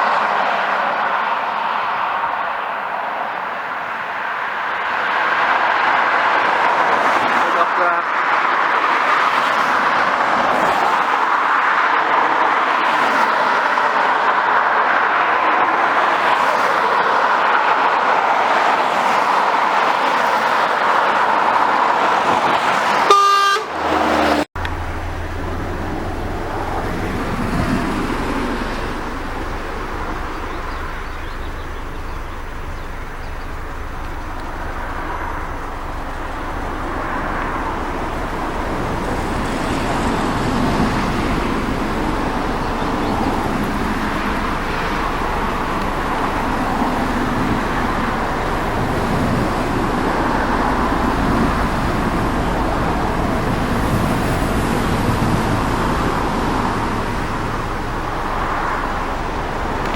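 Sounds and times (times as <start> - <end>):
car engine and road noise: 0.0 - 59.9
car horn toot: 22.9 - 24.3.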